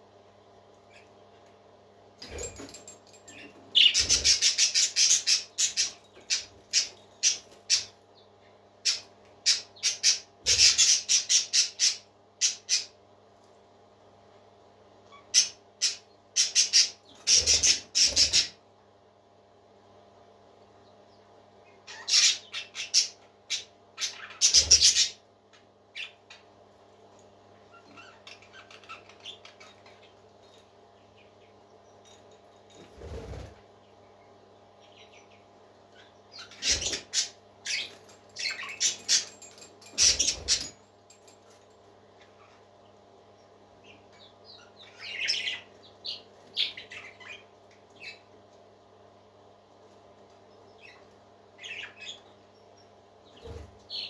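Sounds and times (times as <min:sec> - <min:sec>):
parakeets chirping: 0:02.3 - 0:07.9, 0:36.0 - 0:41.2, 0:43.8 - 0:47.4, 0:51.6 - 0:52.3.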